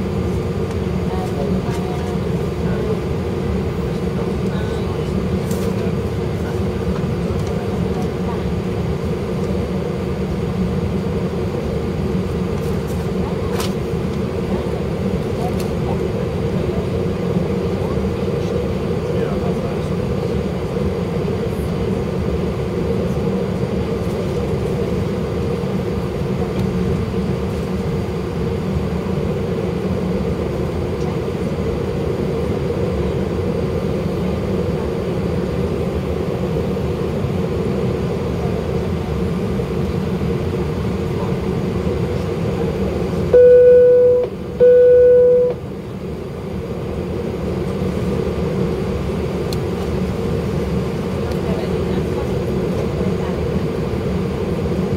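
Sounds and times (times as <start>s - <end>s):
aircraft cabin rumble: 0.0s - 54.9s
loud steady beeps: 43.3s - 45.6s.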